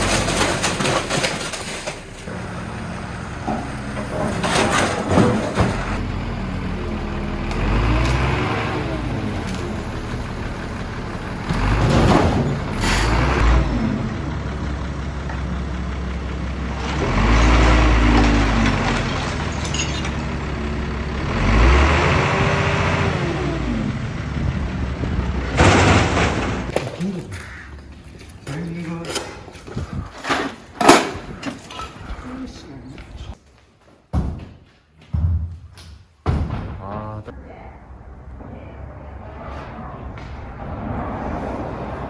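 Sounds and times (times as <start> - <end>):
large engine revving: 2.3 - 15.3, 16.2 - 19.6, 20.3 - 26.7.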